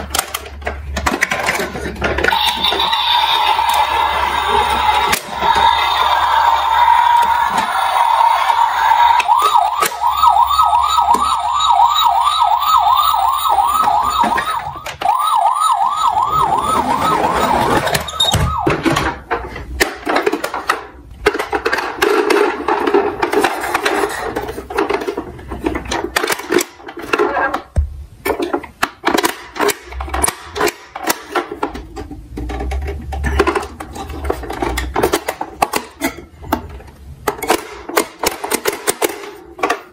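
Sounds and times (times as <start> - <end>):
emergency vehicle siren: 2.3 - 19.3.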